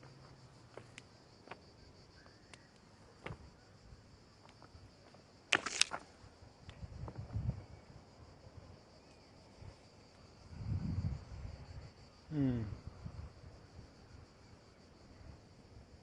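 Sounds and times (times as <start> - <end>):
high insect buzz: 0.0 - 16.0
footsteps crunching on stony trail: 4.5 - 6.1
scuffing: 5.5 - 6.0.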